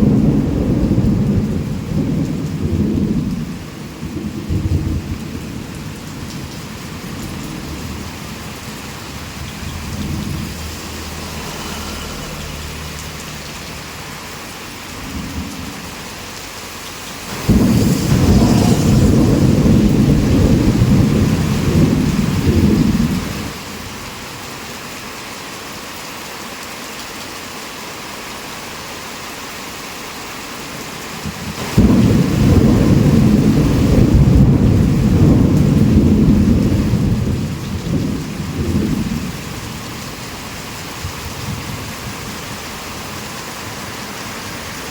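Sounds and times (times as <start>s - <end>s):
thunder rumbling: 0.0s - 13.9s, 17.3s - 24.4s, 31.2s - 44.9s
heavy rain falling: 0.0s - 44.9s.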